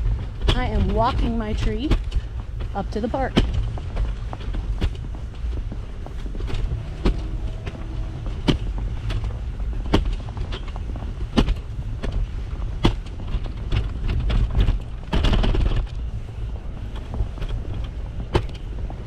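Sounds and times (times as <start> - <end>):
wind rumble on microphone: 0.0 - 19.0
rushing scrape: 3.7 - 11.4
footsteps crunching in snow: 3.7 - 12.8.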